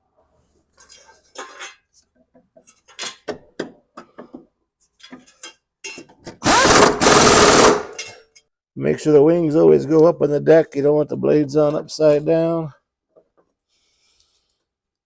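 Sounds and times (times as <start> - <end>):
power tool running: 6.4 - 7.9.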